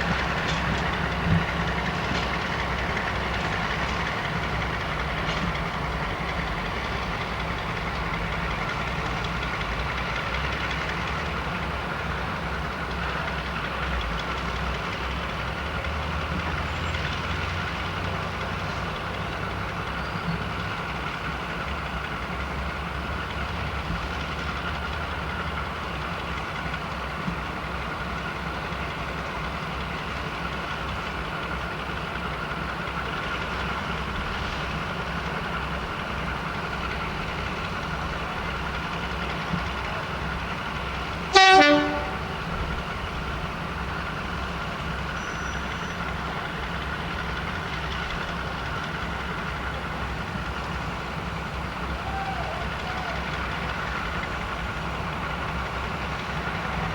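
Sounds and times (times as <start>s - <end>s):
diesel railway engine running: 0.0s - 56.9s
loud train horn blast: 41.3s - 42.6s.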